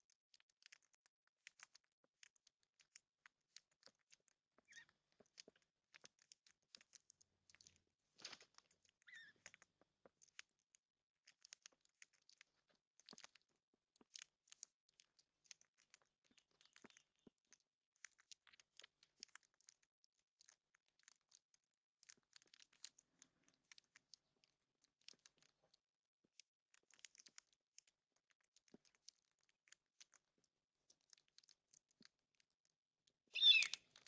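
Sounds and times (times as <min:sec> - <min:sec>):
birds pecking at seed: 0:00.0 - 0:34.0
short bird calls: 0:33.4 - 0:33.8.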